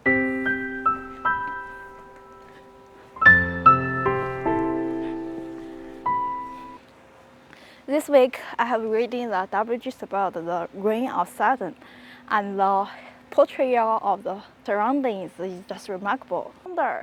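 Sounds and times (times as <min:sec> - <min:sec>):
piano chords and notes: 0:00.0 - 0:06.8.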